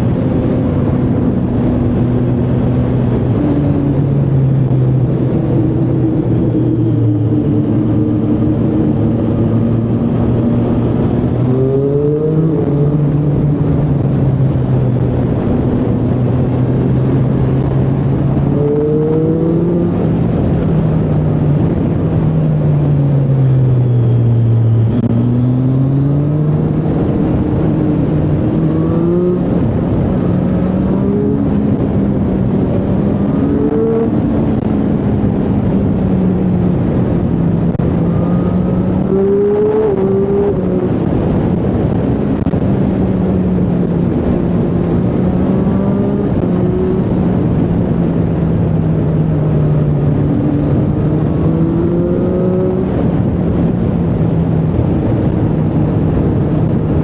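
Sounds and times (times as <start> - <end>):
motorcycle engine revving: 0.0 - 57.0
noisy rush: 0.0 - 57.0.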